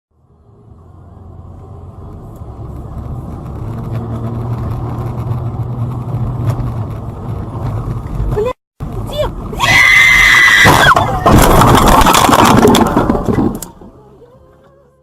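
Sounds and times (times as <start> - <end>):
road noise: 0.1 - 15.0
car engine hum: 0.2 - 15.0.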